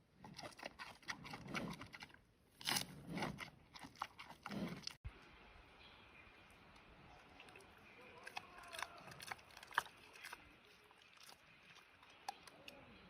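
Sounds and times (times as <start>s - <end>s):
panda chewing bamboo: 7.1s - 12.8s.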